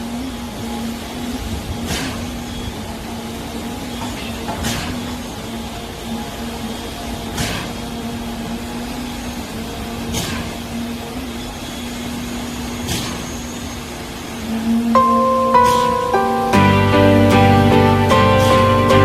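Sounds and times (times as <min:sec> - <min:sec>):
music: 0:15.0 - 0:19.0.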